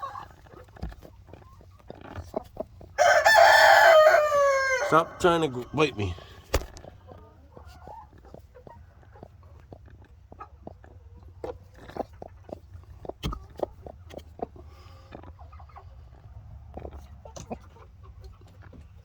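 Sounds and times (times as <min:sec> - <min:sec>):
hen clucking: 0:00.0 - 0:19.0.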